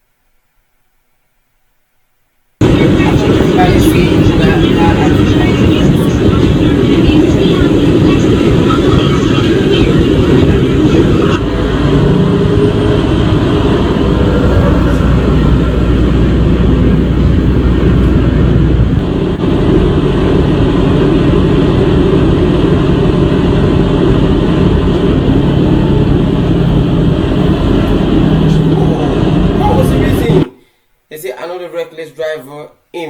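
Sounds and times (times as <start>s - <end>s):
truck engine droning: 2.6s - 30.5s
road noise: 2.6s - 30.6s.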